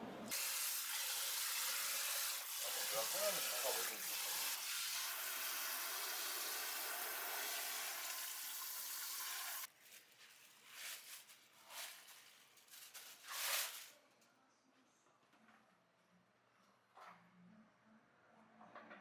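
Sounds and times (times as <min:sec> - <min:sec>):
water running from a tap: 0:00.3 - 0:09.7.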